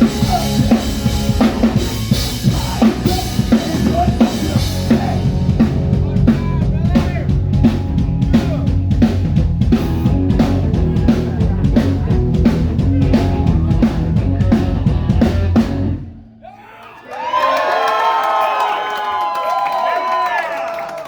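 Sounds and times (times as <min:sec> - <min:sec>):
live band playing: 0:00.0 - 0:16.1
drum kit beat: 0:00.0 - 0:16.3
bass line: 0:00.0 - 0:16.5.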